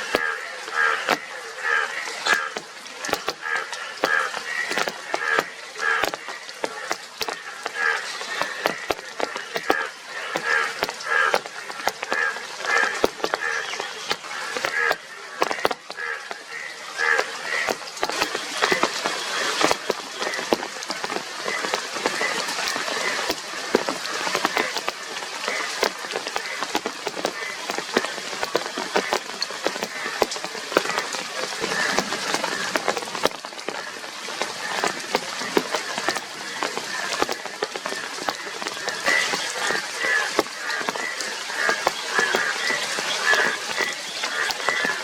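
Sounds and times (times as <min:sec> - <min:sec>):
rain drops tapping and spattering: 0:00.0 - 0:45.0.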